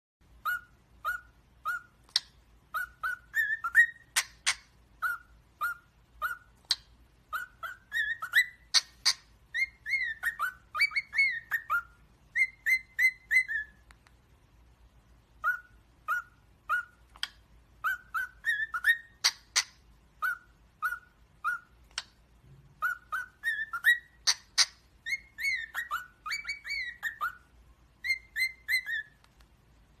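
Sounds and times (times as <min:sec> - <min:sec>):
small parrots chirping: 0:00.2 - 0:30.0
sharp parrot call: 0:00.4 - 0:13.8, 0:15.4 - 0:21.8.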